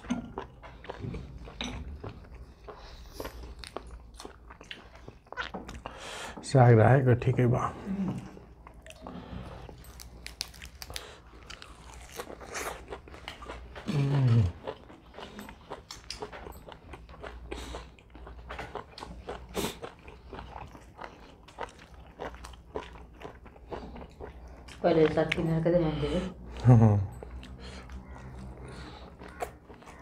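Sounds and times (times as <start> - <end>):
crunching and wet chewing: 0.0 - 6.4, 8.1 - 30.0
low hummed voice: 13.8 - 14.6.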